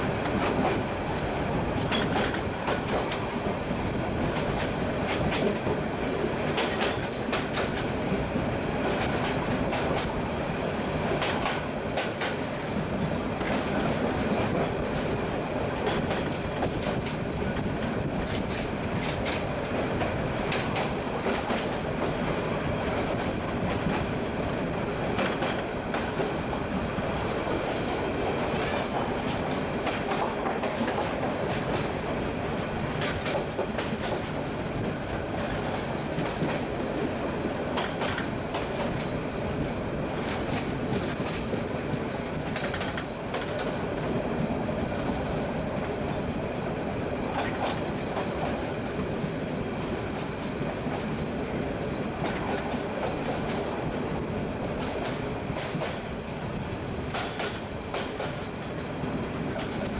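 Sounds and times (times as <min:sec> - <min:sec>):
sharp track clacks: 0:00.0 - 0:59.9
train wheels rumbling on track: 0:00.0 - 0:59.9.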